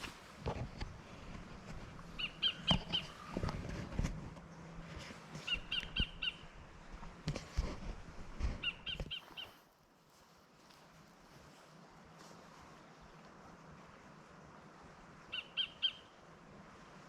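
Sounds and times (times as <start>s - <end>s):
footsteps on a bush track: 0.0s - 6.1s, 6.9s - 13.4s
bird calling in repeated notes: 2.1s - 3.5s, 5.4s - 6.6s, 8.6s - 9.6s, 15.2s - 16.2s.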